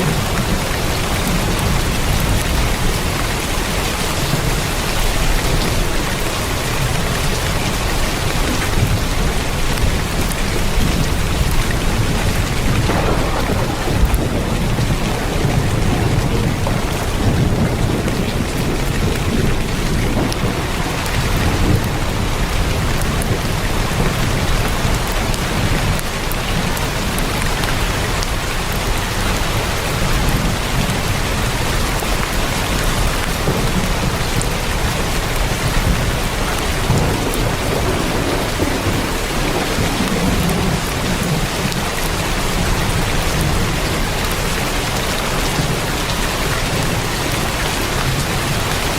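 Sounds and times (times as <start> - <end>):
heavy rain on a tin roof: 0.0 - 48.9
deep low rumble: 11.5 - 20.5.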